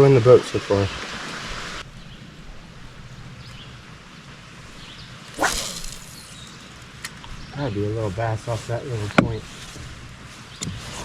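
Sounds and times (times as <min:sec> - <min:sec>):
rain hiss: 0:00.0 - 0:11.0
fishing rod swish: 0:05.4 - 0:06.5.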